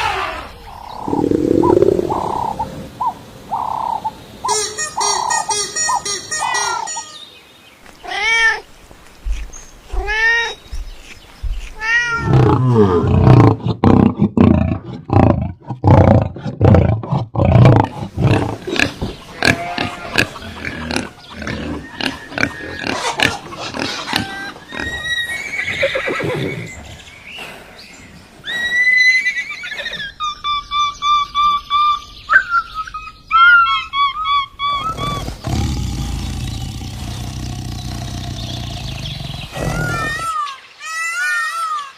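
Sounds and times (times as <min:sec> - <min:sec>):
animal rising and falling cries: 0:24.0 - 0:26.7, 0:39.5 - 0:41.9.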